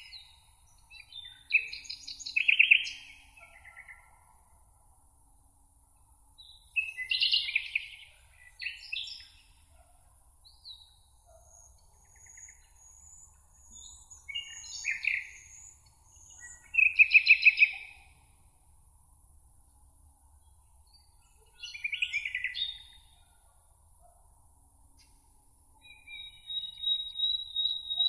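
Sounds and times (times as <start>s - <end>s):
songbirds singing: 0.0s - 4.2s, 6.4s - 18.4s, 20.4s - 23.4s, 25.8s - 28.0s.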